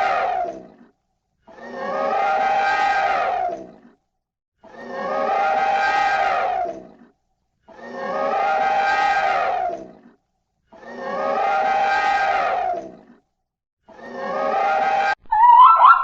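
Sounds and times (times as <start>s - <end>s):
animal crying: 14.2s - 16.0s.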